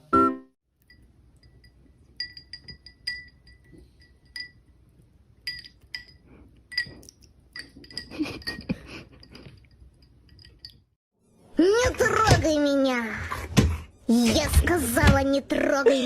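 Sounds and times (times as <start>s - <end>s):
glassy clinking: 0.8s - 4.8s, 5.4s - 10.9s.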